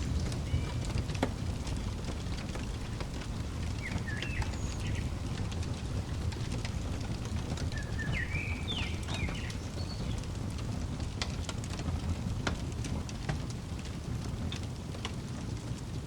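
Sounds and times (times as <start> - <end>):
bird chirping: 0.0 - 1.0, 1.6 - 10.3
fireplace crackling and popping: 0.0 - 16.0.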